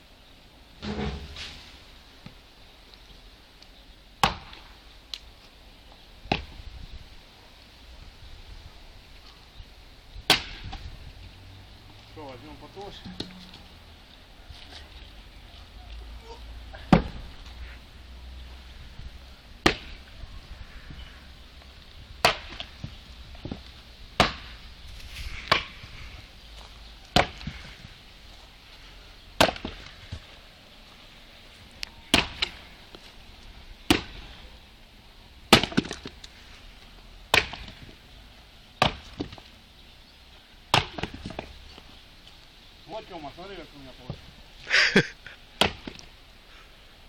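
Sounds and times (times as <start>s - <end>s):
axe chopping firewood: 0.8s - 1.7s, 4.2s - 4.8s, 6.3s - 6.6s, 10.3s - 10.8s, 12.8s - 13.6s, 16.8s - 17.5s, 19.6s - 20.1s, 22.2s - 24.6s, 25.4s - 25.9s, 27.0s - 27.8s, 29.4s - 30.2s, 32.1s - 32.7s, 33.9s - 34.4s, 35.5s - 36.3s, 37.3s - 38.0s, 38.8s - 39.4s, 40.7s - 41.6s, 45.6s - 46.2s.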